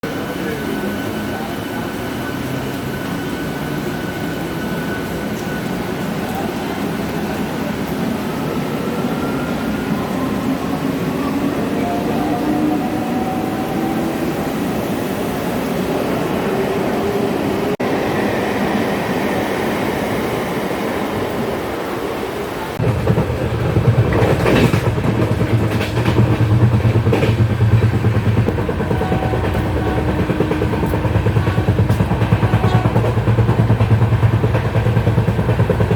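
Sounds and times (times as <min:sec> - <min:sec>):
train rumble: 0:00.0 - 0:35.9
rail clatter: 0:22.8 - 0:35.9.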